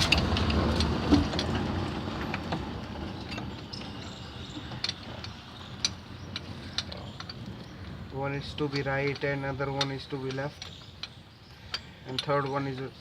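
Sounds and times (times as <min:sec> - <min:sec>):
clinks of tools and metal parts: 0:03.1 - 0:07.7, 0:08.5 - 0:13.0.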